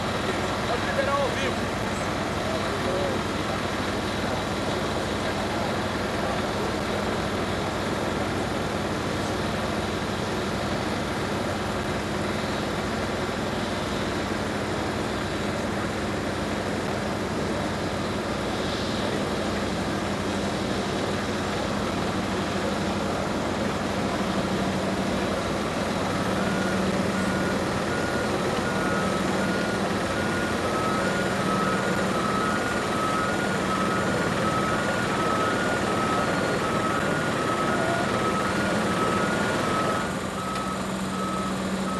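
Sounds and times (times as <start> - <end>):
jet engine noise: 0.0 - 41.9.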